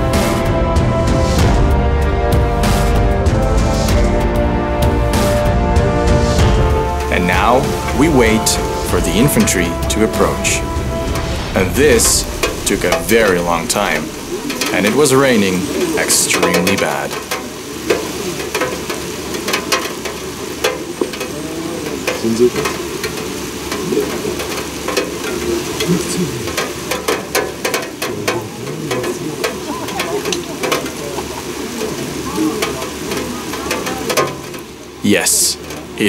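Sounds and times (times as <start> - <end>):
heavy rain falling: 0.0 - 36.0
raindrops ticking near microphone: 0.0 - 36.0.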